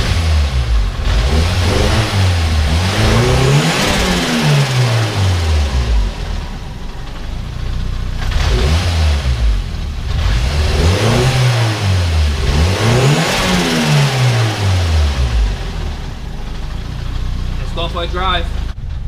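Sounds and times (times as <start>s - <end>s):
turbo compressor surge: 0.0s - 18.8s
car engine revving: 0.0s - 19.0s.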